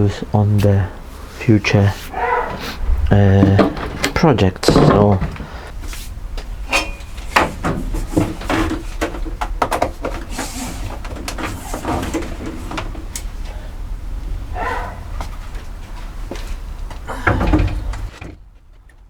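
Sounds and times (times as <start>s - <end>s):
low steady hum: 0.0s - 19.0s
boards and tools knocking: 3.3s - 5.7s, 6.4s - 13.2s, 14.6s - 19.0s.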